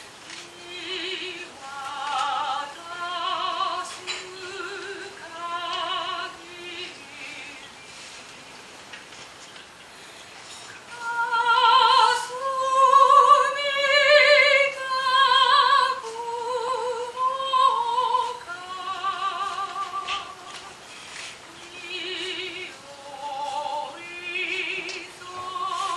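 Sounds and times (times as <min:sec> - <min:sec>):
woman singing operatic style: 0:00.3 - 0:07.8, 0:10.9 - 0:25.9.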